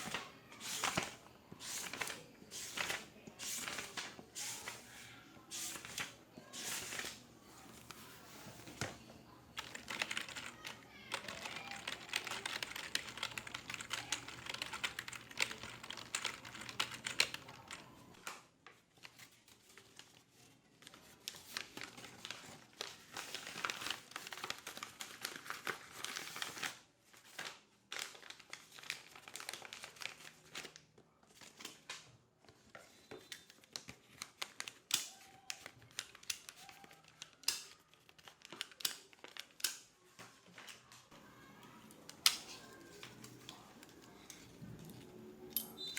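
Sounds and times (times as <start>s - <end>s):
keyboard typing: 8.8s - 18.0s.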